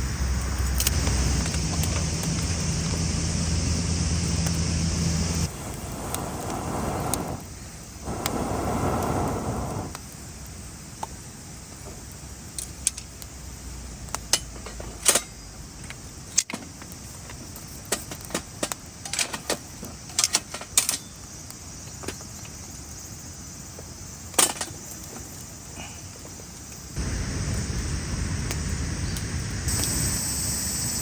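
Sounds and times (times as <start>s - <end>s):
faint outdoor hiss: 0.0s - 31.0s.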